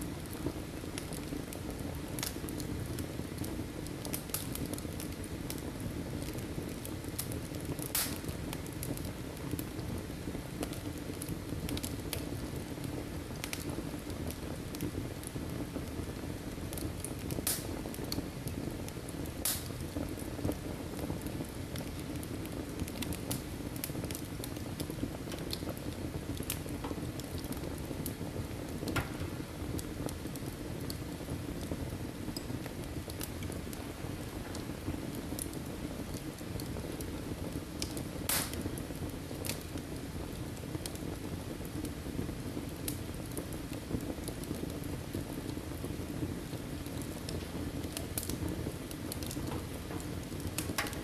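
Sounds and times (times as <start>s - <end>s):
burning logs crackling and popping: 0.0s - 51.0s
fire hissing and rumbling: 0.0s - 51.0s.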